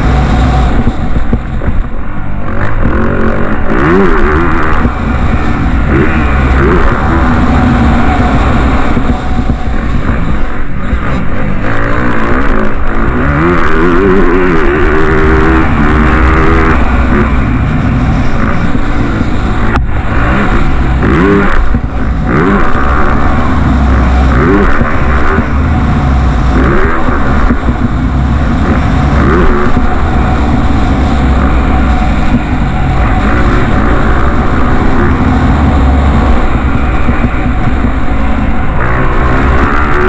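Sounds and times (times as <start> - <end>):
motocross bike engines revving: 0.0 - 40.0.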